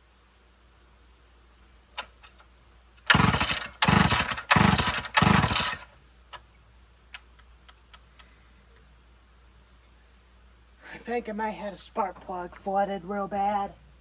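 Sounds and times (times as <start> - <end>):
chainsaw recoil starter yanks: 3.0 - 6.4.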